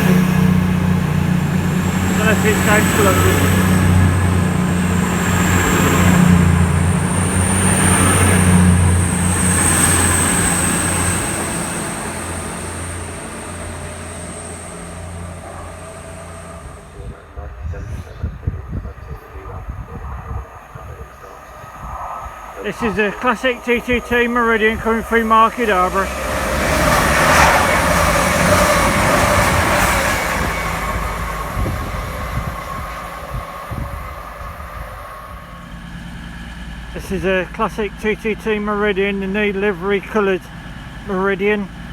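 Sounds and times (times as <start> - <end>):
thin high whine: 0.0 - 41.4
diesel train engines humming: 0.0 - 41.9
wheel clacks: 22.6 - 41.9.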